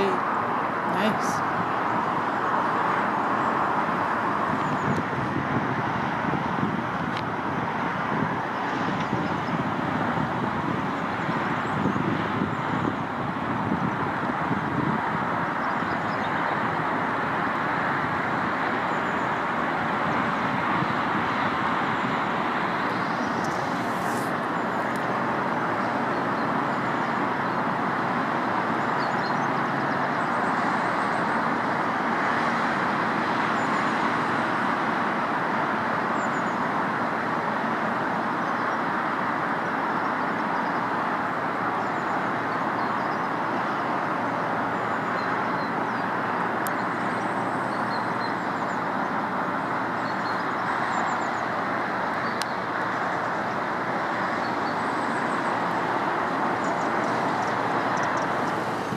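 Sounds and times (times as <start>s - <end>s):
distant road traffic roar: 0.0s - 58.9s
small birds chirping: 54.3s - 58.9s.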